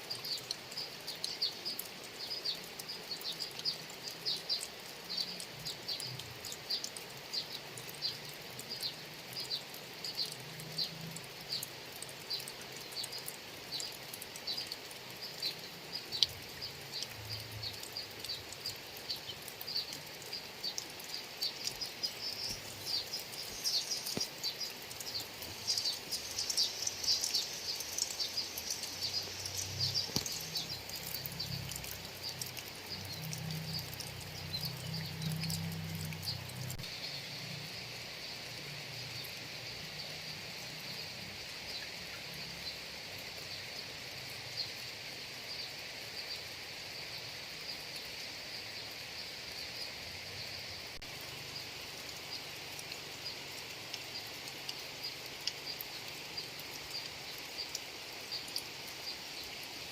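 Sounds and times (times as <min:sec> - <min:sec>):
steady rain falling: 0:00.0 - 0:59.9
birds chirping: 0:12.3 - 0:37.3
high insect drone: 0:18.8 - 0:59.9.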